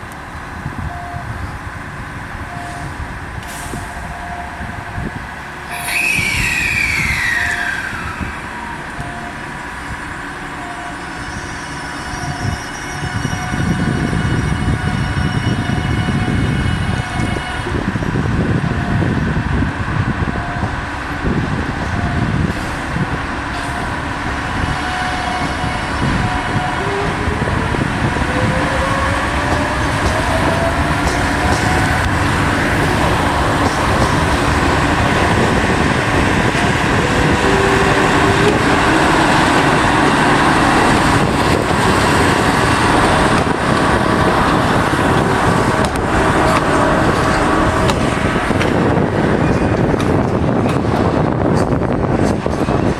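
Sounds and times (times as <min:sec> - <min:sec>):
diesel locomotive rumble: 0:00.0 - 0:52.9
level-crossing alarm dinging: 0:07.1 - 0:09.8, 0:35.0 - 0:41.4.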